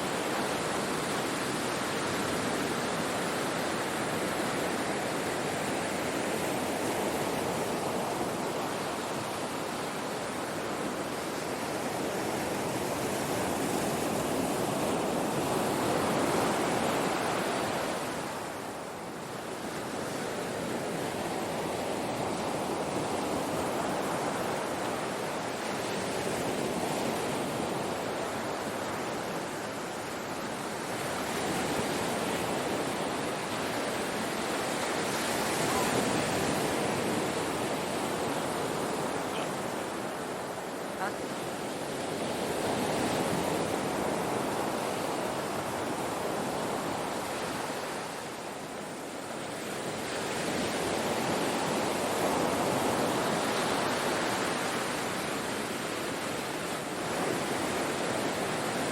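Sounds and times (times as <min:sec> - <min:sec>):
ocean surf breaking on shore: 0:00.0 - 0:58.9.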